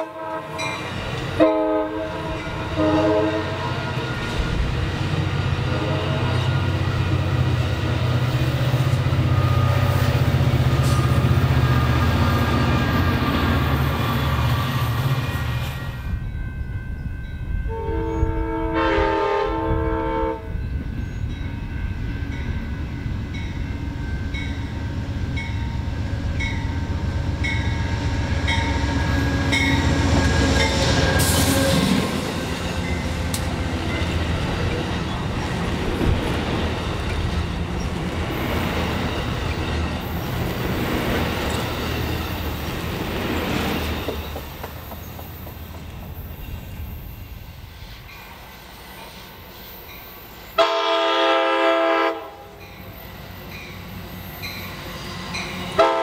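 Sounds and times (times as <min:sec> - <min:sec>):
locomotive horn chord: 0:00.0 - 0:04.0, 0:05.6 - 0:06.4, 0:17.7 - 0:20.6, 0:50.6 - 0:52.6, 0:55.8 - 0:56.0.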